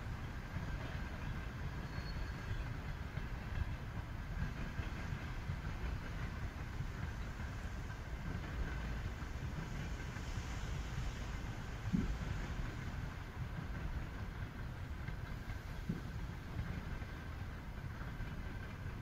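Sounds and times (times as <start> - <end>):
distant train rumbling on tracks: 0.0 - 19.0.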